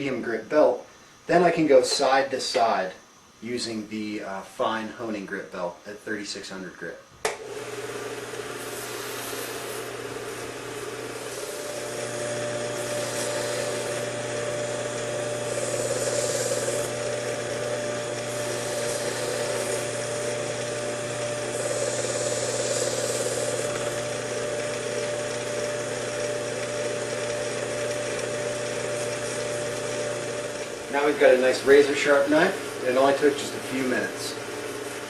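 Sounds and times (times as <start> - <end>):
belt sharpener running: 7.3 - 35.0
knife hissing on belt: 8.6 - 11.9, 12.8 - 14.0.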